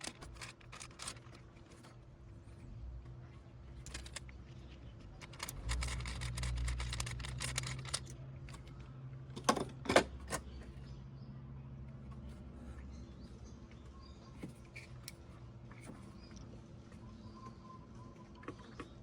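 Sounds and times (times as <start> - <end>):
metallic rattling of tools: 5.2 - 8.7
sharp clicks: 5.2 - 8.7.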